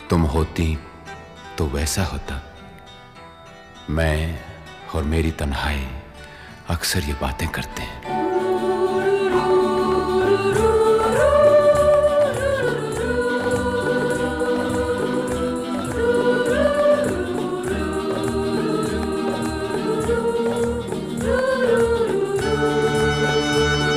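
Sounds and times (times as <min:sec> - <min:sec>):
wordless sung melody: 0:00.0 - 0:23.9.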